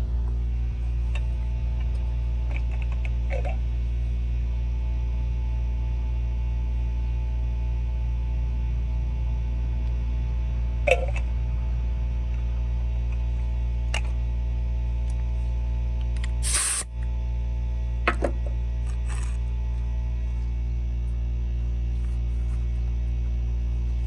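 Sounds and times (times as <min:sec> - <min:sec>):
electrical mains hum: 0:00.0 - 0:24.0
short burst of noise: 0:16.4 - 0:16.8.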